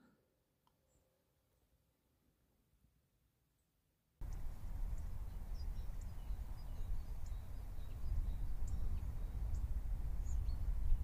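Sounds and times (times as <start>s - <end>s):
small birds chirping: 4.2s - 11.0s.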